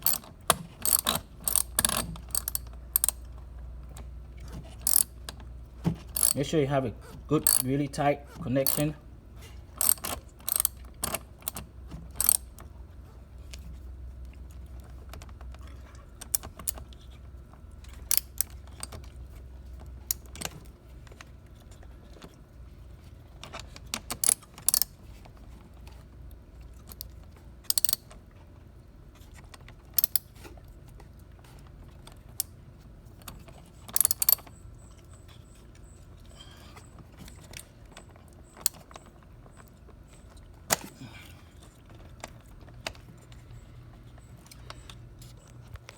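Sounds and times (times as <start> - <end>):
wrench clicking on metal: 0.0 - 3.2, 4.8 - 5.2, 6.2 - 6.5, 7.4 - 7.7, 8.6 - 8.9, 9.8 - 11.6, 12.2 - 12.5, 18.1 - 18.6, 24.2 - 24.9, 27.7 - 28.0, 30.0 - 30.2, 33.9 - 34.4.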